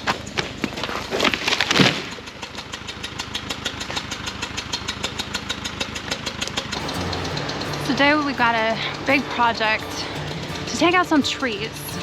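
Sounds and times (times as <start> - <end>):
dozer diesel engine idling: 6.8 - 12.0.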